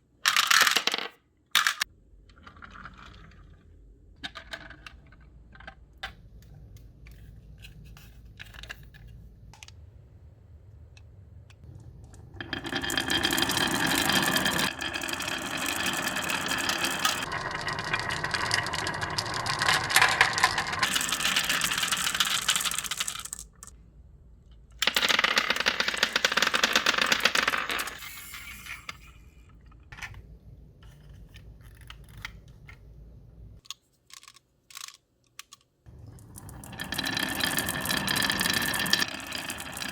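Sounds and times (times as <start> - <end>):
marbles rolling and clattering: 0.3 - 5.8, 11.6 - 23.7, 24.8 - 29.6, 35.9 - 39.9.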